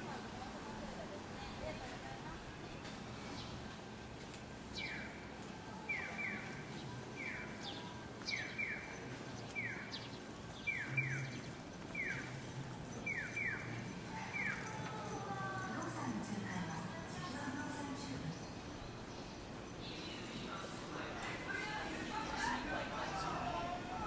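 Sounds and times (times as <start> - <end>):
low street noise: 0.0 - 24.0.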